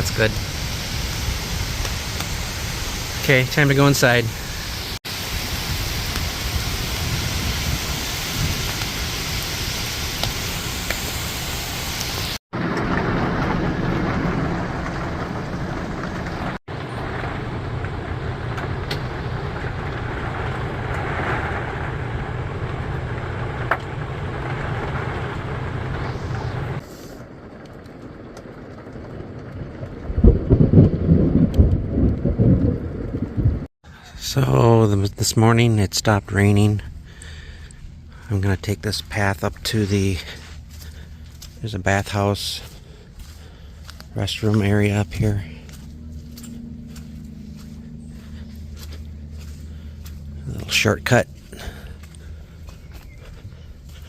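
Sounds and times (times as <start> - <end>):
heavy rain falling: 0.0 - 33.5.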